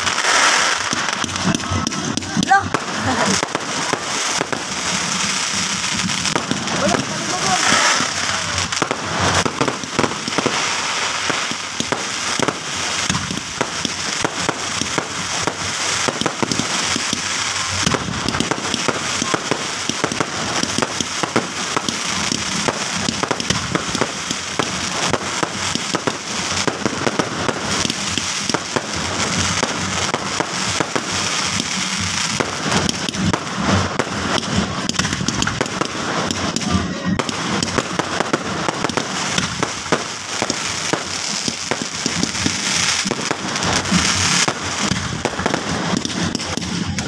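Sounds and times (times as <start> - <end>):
fireworks popping and crackling: 0.0 - 47.0.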